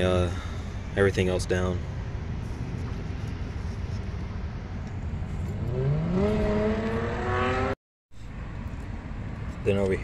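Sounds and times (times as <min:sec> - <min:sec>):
engine revving: 0:05.5 - 0:07.8.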